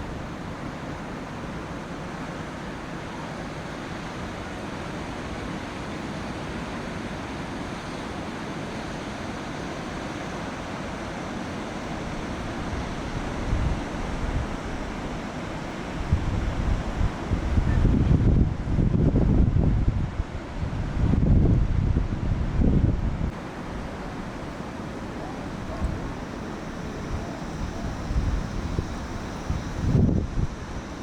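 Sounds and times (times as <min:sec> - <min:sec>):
ocean surf washing: 0:00.0 - 0:31.0
wind rumbling on microphone: 0:12.1 - 0:31.0.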